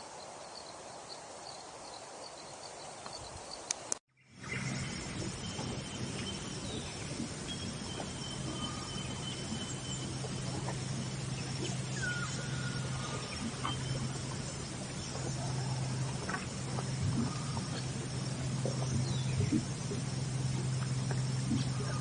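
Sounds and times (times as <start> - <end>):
faint ticks: 3.0 - 4.0, 7.2 - 22.0
steady low hum: 4.2 - 22.0
faint whistled bird calls: 4.4 - 14.4.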